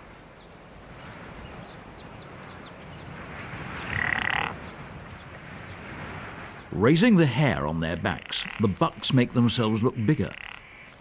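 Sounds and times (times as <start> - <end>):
outdoor background hiss: 0.0 - 11.0
small birds chirping: 0.1 - 6.8.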